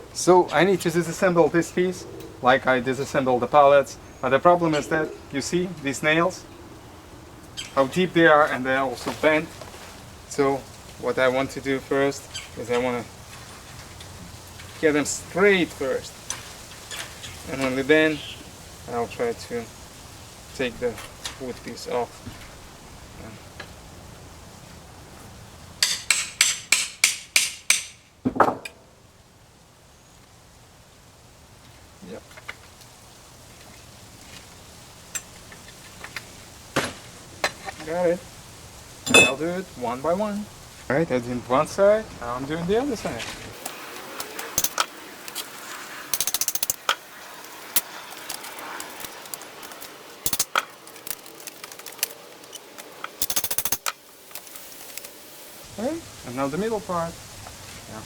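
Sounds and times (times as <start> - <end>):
metallic clicking and rattling: 44.2 - 45.4, 46.1 - 47.0, 47.7 - 55.0.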